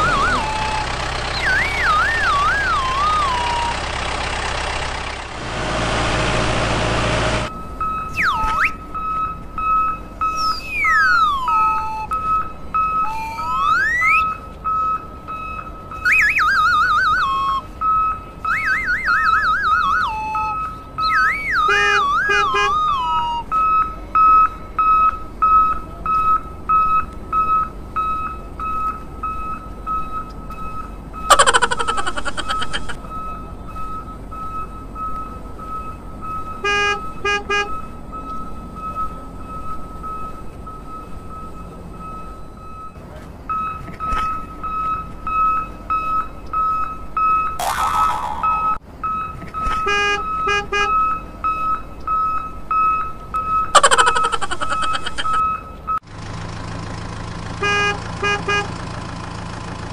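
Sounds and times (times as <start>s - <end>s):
electronic warbling tones: 0.0s - 3.8s, 47.6s - 48.8s
high-pitched beep: 48.4s - 53.9s.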